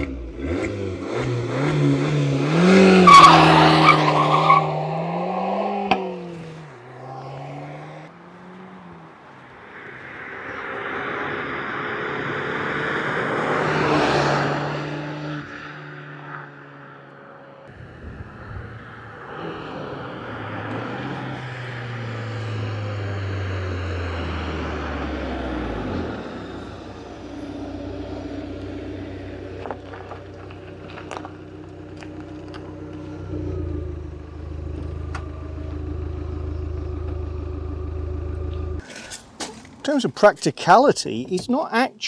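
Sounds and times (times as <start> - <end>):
car engine driving by: 0.0 - 39.9
tyre noise: 23.9 - 35.4
car engine idling: 25.7 - 38.8.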